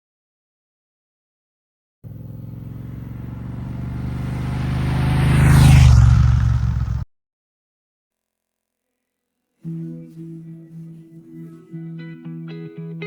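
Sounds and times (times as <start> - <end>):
motorcycle passing by: 2.1 - 7.0.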